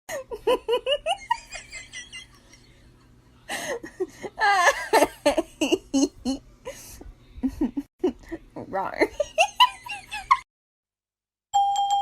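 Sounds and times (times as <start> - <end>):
person laughing: 3.5 - 10.4.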